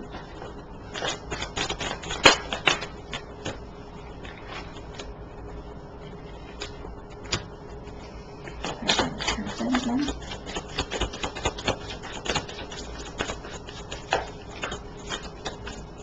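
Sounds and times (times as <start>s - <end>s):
cards being shuffled: 8.4s - 16.0s.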